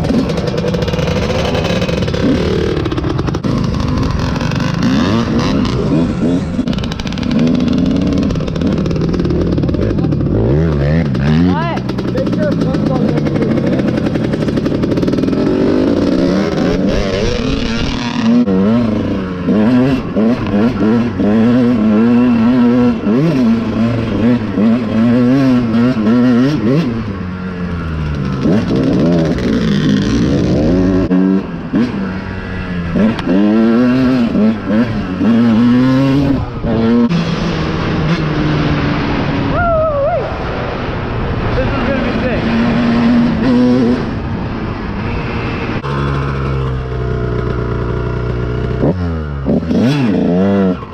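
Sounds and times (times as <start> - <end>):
dirt bike engine revving: 0.0 - 39.6, 40.4 - 50.9.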